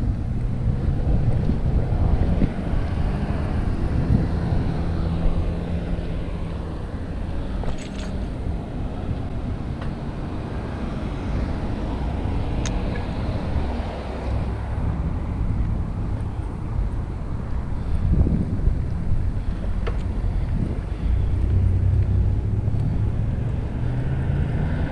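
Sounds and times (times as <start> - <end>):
bike riding noise: 0.0 - 24.9
wind rumbling on microphone: 0.0 - 24.9.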